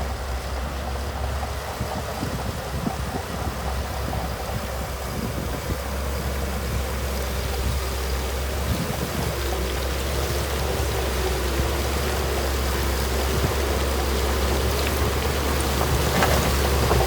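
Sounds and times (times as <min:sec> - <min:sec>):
diesel engine running: 0:00.0 - 0:17.0
soil and gravel rushing: 0:00.0 - 0:17.0
clatter: 0:13.1 - 0:17.0.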